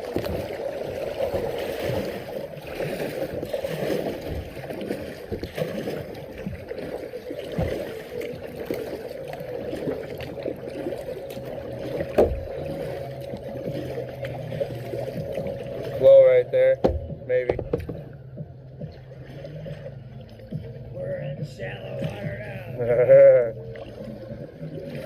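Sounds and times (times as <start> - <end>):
water splashing around paddle: 0.0 - 25.0
knocks on kayak hull: 12.1 - 12.5, 16.8 - 18.0.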